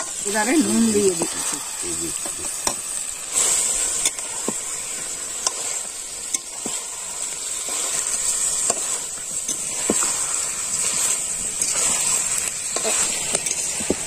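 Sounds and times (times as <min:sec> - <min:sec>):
chicken sizzling in oil: 0:00.0 - 0:14.0
metal spatula scraping pan: 0:00.0 - 0:14.0.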